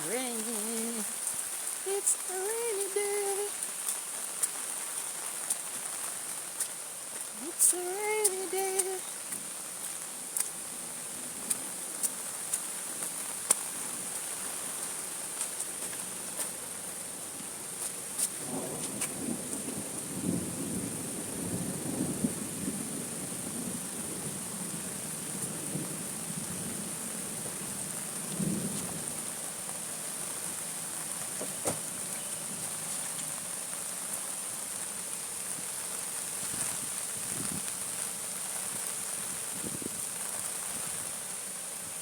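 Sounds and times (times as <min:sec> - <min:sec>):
high-pitched hiss: 0:00.0 - 0:04.9, 0:05.5 - 0:10.0
steady rain: 0:00.0 - 0:42.0.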